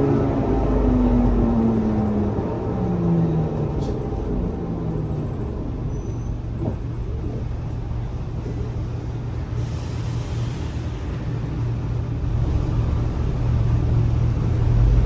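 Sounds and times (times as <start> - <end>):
bus engine rumbling: 0.0 - 15.0
air brake hiss: 9.6 - 11.2.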